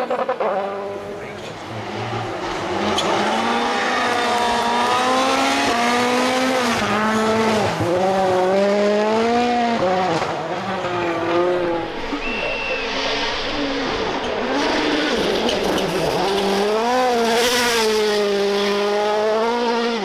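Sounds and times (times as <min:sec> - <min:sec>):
rally car engine revving: 0:00.0 - 0:20.0
brief high squeal: 0:11.6 - 0:17.0.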